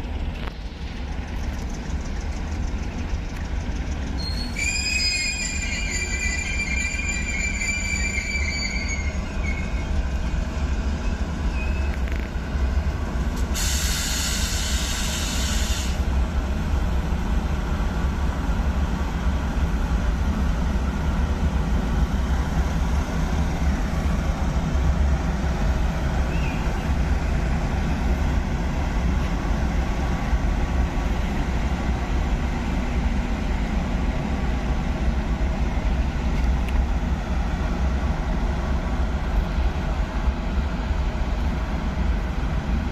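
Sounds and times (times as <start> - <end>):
train rumbling: 0.0 - 42.9
hiss: 13.4 - 16.1.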